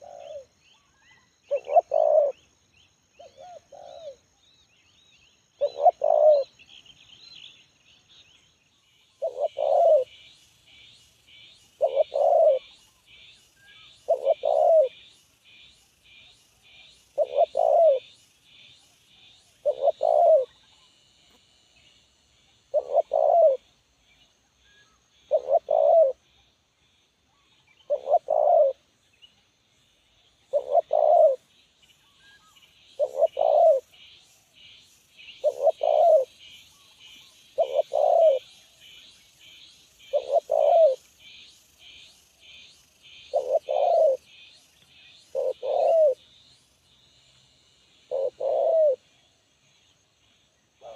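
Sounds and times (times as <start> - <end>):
dove cooing: 0.0 - 0.6, 1.5 - 2.5, 3.2 - 4.3, 5.6 - 6.6, 9.2 - 10.2, 11.8 - 12.8, 13.6 - 15.0, 17.1 - 18.1, 19.6 - 20.6, 22.7 - 23.7, 25.2 - 26.2, 27.7 - 28.9, 30.4 - 31.5, 32.2 - 34.0, 35.2 - 38.6, 40.0 - 41.1, 43.3 - 44.3, 45.2 - 46.2, 48.1 - 49.1.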